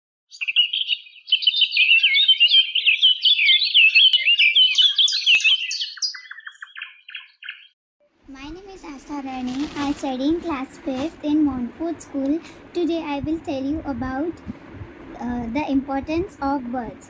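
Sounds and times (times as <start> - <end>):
birds chirping and twittering: 0.3 - 7.8.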